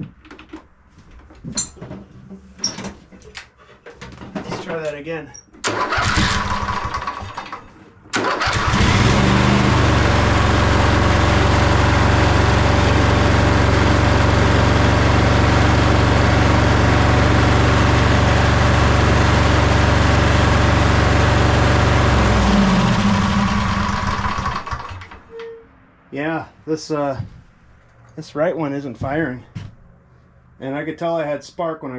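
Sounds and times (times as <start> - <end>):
lawn tractor engine running: 5.6 - 25.2.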